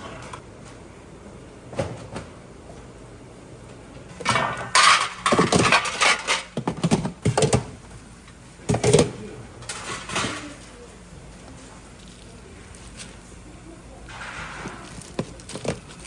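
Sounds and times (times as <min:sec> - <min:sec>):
dishes and utensils clattering: 0:04.2 - 0:07.6, 0:08.7 - 0:10.6.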